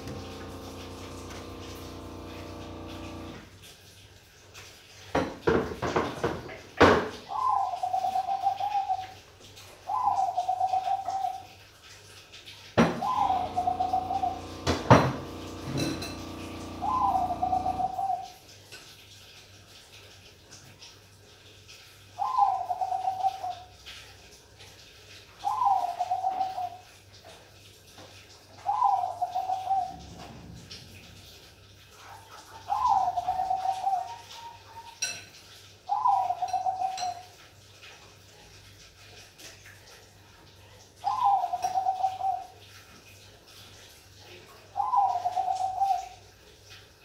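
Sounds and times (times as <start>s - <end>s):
dove cooing: 13.0s - 14.6s, 15.2s - 18.3s, 28.6s - 30.3s, 32.5s - 34.6s, 41.0s - 42.5s, 44.8s - 46.2s.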